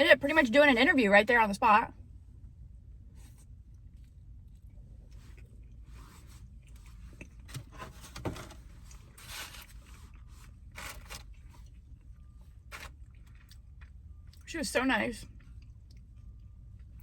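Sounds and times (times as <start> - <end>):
crunching and chewing: 3.6 - 14.5, 15.3 - 17.0.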